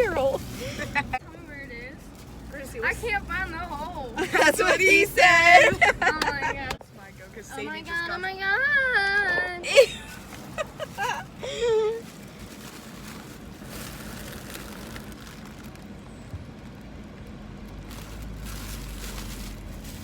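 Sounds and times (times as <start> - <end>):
vehicle engine rumble: 0.0 - 20.0.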